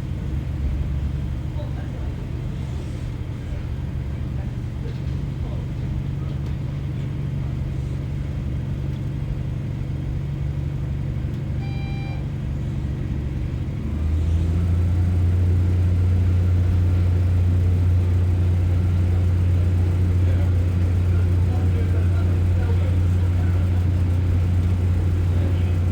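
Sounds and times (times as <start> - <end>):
train diesel engine running: 0.0 - 25.9
brief beep: 11.6 - 12.3.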